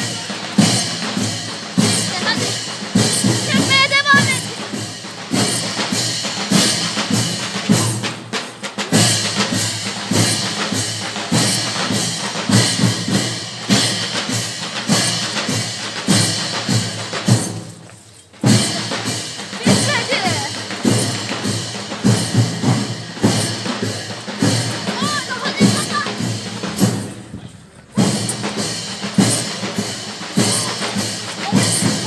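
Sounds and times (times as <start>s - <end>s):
big drums beating march rhythm: 0.0s - 32.0s
ringing cymbal crashes: 9.0s - 17.7s, 18.4s - 25.0s.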